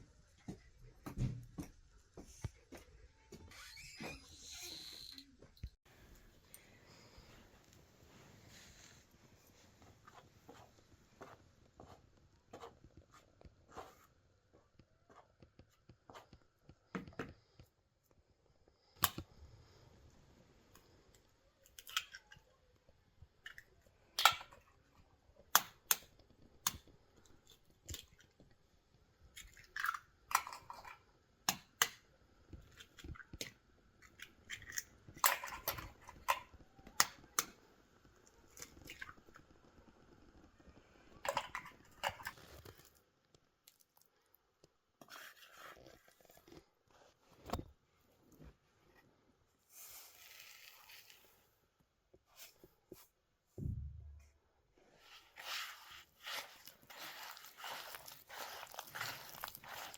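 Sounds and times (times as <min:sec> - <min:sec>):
objects clicking and knocking: 0:41.2 - 0:42.9.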